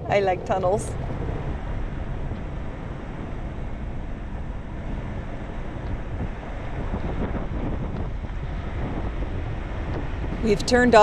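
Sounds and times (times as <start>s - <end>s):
road and engine noise in car: 0.0s - 1.6s.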